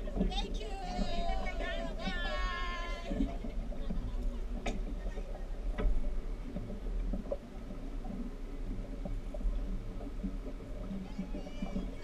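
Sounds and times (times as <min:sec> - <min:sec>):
speedboat engine rumble: 0:00.0 - 0:12.0.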